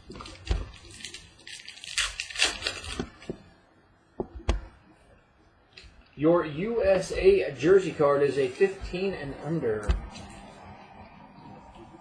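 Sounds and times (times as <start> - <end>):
cards rustling: 0.0 - 3.5, 9.8 - 10.6
card pack wrapper crinkling: 0.1 - 3.4.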